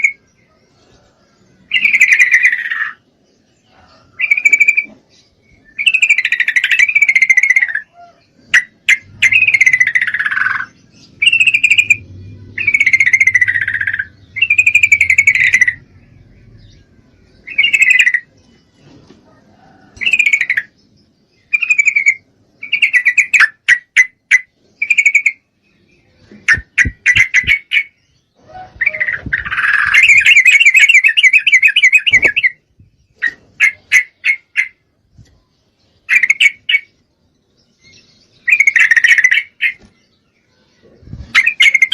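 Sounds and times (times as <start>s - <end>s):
bird rapid trill: 1.7s - 3.0s, 5.7s - 18.4s, 26.4s - 34.8s, 38.4s - 39.9s, 41.2s - 41.9s
bird chattering call: 4.2s - 5.1s, 5.7s - 16.8s, 17.4s - 18.3s, 26.4s - 34.8s, 36.1s - 37.0s.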